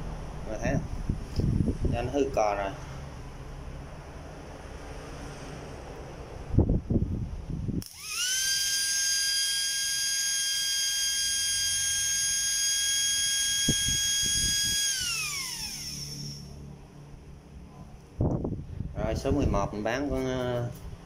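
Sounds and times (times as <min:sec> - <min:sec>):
drill motor whining: 0:07.8 - 0:16.6.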